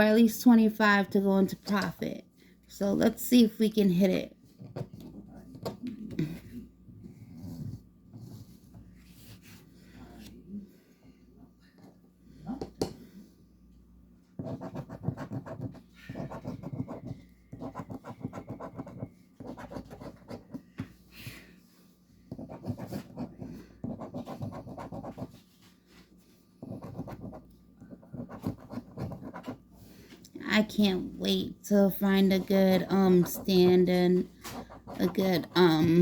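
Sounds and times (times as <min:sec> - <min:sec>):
lottery ticket scratching: 0:31.8 - 0:36.0.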